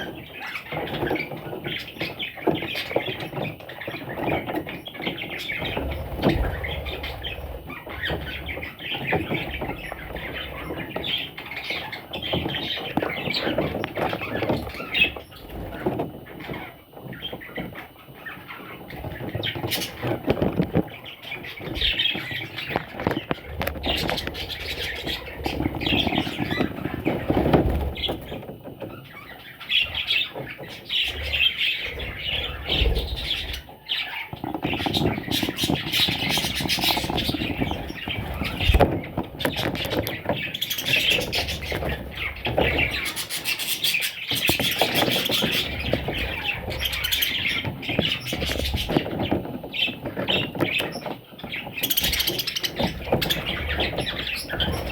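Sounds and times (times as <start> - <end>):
parrots chirping and chattering: 0.0 - 54.9
clicks and rustling: 18.8 - 29.2, 32.0 - 54.9.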